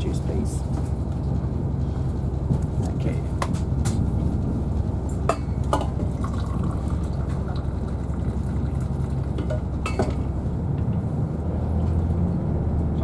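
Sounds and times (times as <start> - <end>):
diesel train rumble: 0.0 - 13.0
hot drink pouring into cup: 5.9 - 9.7.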